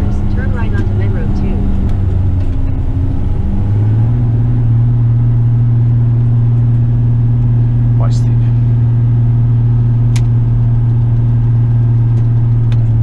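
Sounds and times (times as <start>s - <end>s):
truck diesel engine under load: 0.0s - 13.0s.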